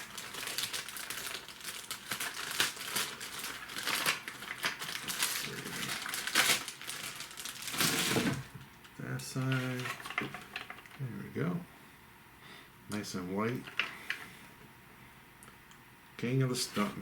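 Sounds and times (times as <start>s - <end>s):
cardboard rustling and crinkling: 0.0s - 8.7s, 16.6s - 17.0s.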